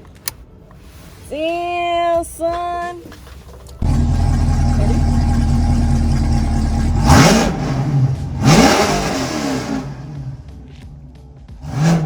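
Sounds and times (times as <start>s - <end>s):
car engine idling and revving: 3.8s - 12.0s.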